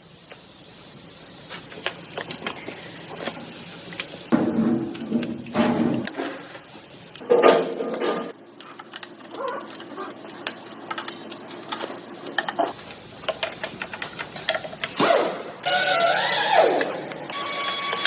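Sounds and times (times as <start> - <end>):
tools clicking and ticking: 8.6 - 18.0
machine hum: 12.8 - 18.0.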